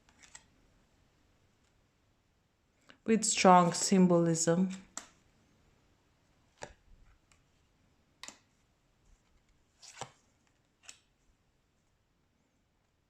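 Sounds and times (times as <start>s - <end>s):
cards tapping and slapping: 9.8s - 10.2s.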